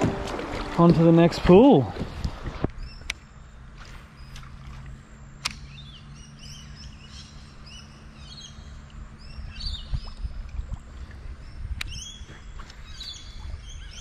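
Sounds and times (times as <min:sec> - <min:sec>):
birds chirping: 0:00.0 - 0:14.0
low steady hum: 0:00.0 - 0:14.0
sharp click: 0:05.4 - 0:05.7.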